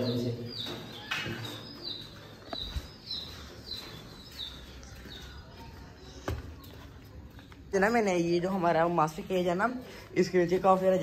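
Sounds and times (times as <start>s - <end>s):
bird chirping: 0.0s - 6.9s.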